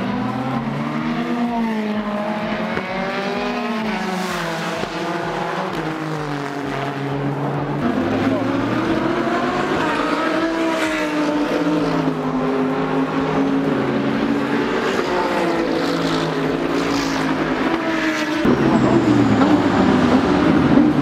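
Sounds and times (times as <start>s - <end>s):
car engines running: 0.0s - 21.0s.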